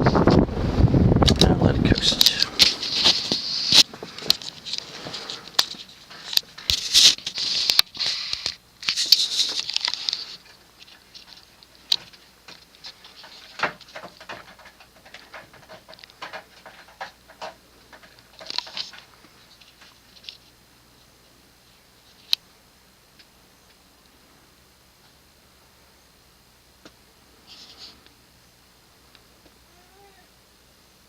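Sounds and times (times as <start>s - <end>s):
ceiling fan whooshing: 0.0s - 14.2s.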